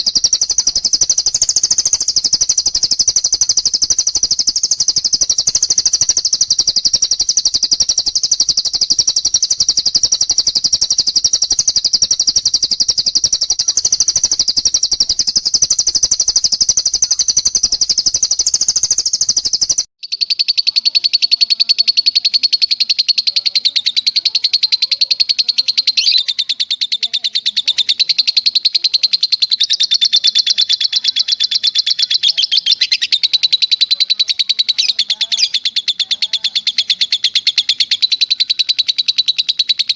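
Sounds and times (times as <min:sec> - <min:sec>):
songbird rapid trills: 0:00.0 - 0:39.9.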